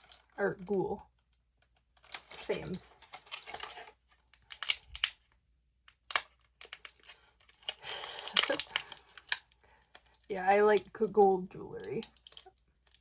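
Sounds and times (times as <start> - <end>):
packaging crinkling: 2.0 - 5.2, 6.1 - 11.2, 11.9 - 13.0
plastic clicks: 3.0 - 5.3, 5.9 - 13.0.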